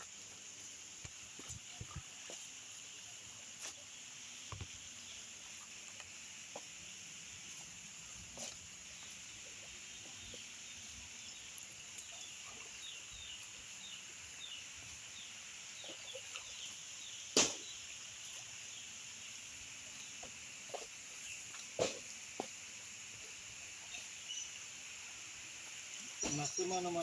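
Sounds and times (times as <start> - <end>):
rain hiss: 0.0 - 27.0
sharp knock: 17.4 - 17.6.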